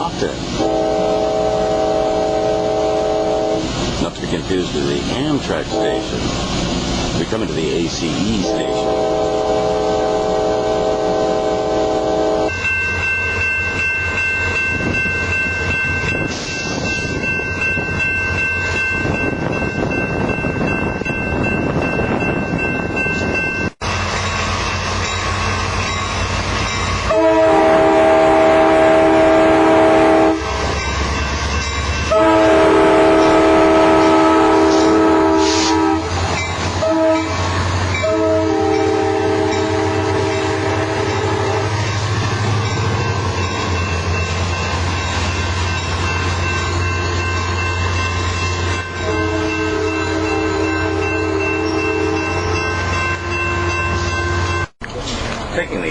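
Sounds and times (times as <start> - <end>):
train running rumble: 0.0 - 55.9
train horn blasts: 0.6 - 3.7, 5.6 - 6.2, 8.4 - 12.6, 27.1 - 30.8, 32.1 - 36.2, 36.8 - 41.9, 49.0 - 54.5.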